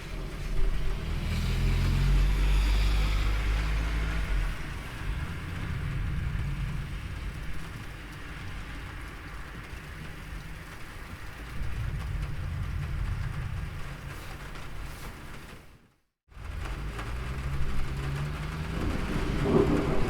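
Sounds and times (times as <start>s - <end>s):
rain hissing: 0.0s - 20.0s
rolling thunder: 4.0s - 15.7s, 16.4s - 20.0s.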